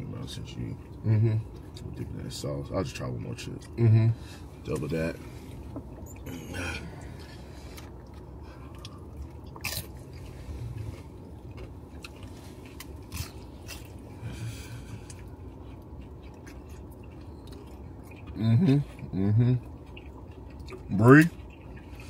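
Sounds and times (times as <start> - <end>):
low hum: 0.0 - 22.0
chewing crunchy chips: 4.7 - 22.0.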